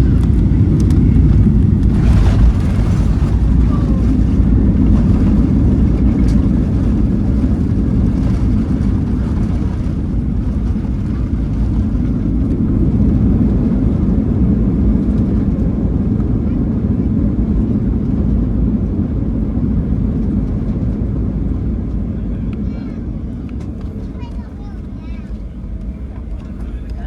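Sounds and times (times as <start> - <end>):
airflow rush: 0.0 - 16.8
jet engine rumble in cabin: 0.0 - 27.0.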